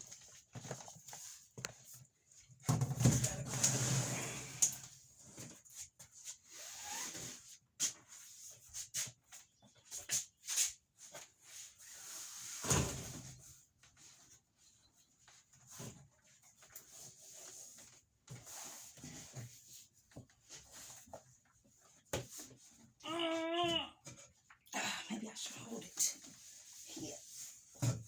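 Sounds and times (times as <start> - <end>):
plastic jugs knocking and clunking: 2.5 - 3.7, 27.7 - 28.0.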